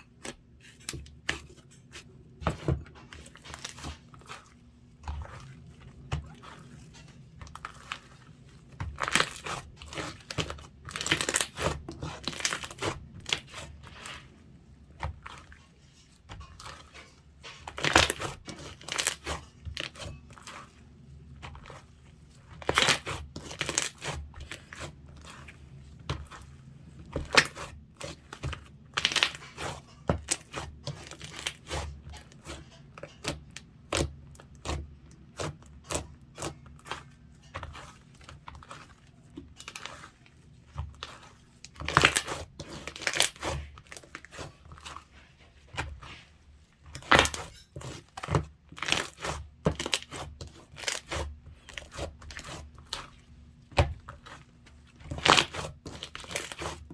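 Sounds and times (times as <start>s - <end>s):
slime crackling and popping: 8.8s - 13.7s.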